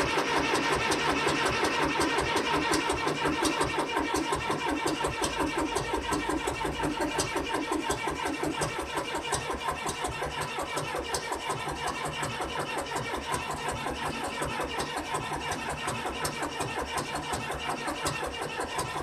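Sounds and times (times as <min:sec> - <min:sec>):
engine knocks: 0:00.0 - 0:19.0.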